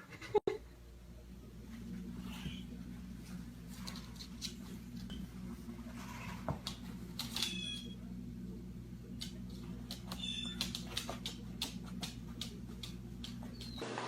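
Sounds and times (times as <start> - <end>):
steady low hum: 0.0 - 13.8
parrot squeaky chirps: 10.2 - 10.6.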